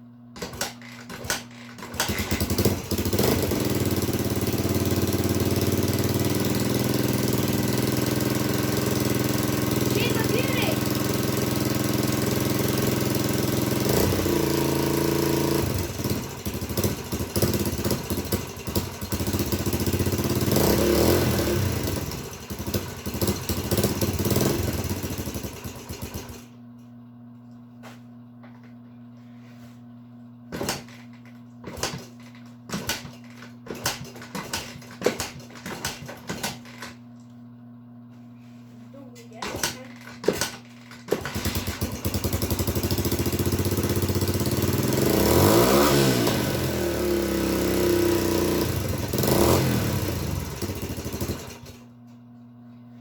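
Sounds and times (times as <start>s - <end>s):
dirt bike engine running: 1.9s - 26.5s, 39.3s - 51.9s.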